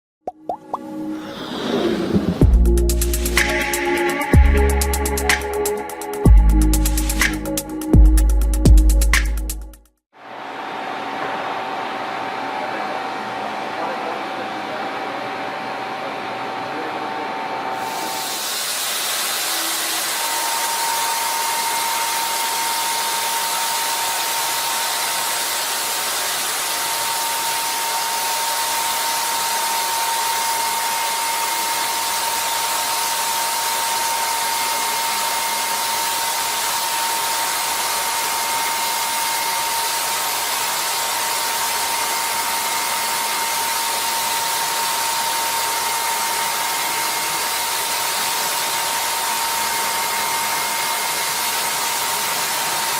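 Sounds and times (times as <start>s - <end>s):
dense even hiss: 1.0s - 3.9s
machine tool whine: 15.8s - 52.9s.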